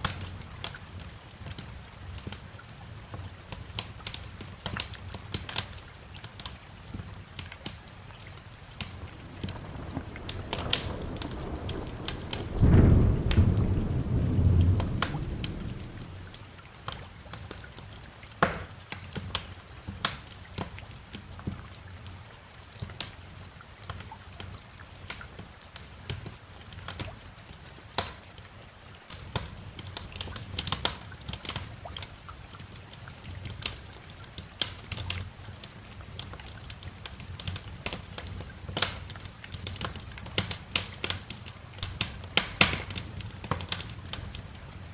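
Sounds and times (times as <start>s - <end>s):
wood fire crackling: 0.0s - 27.2s, 29.1s - 44.9s
steady rain: 0.0s - 44.9s
thunder rumbling: 8.4s - 16.8s.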